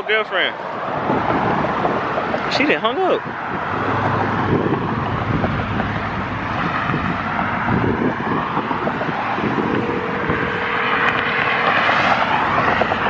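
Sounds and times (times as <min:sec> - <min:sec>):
passing road traffic: 0:00.0 - 0:13.0
wind on microphone: 0:00.6 - 0:13.0.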